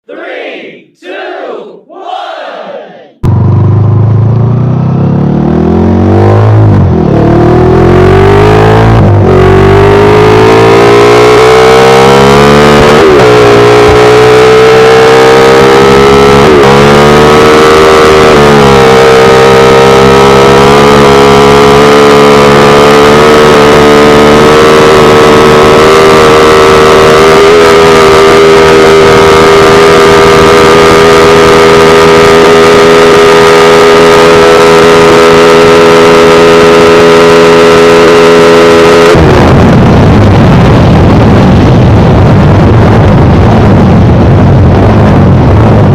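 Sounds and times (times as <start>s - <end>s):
motorcycle engine accelerating: 3.2s - 45.9s.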